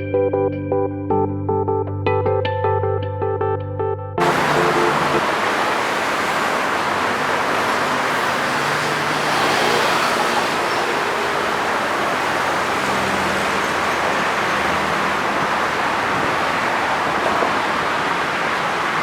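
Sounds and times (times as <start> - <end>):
heavy diesel machinery running: 4.2 - 17.3.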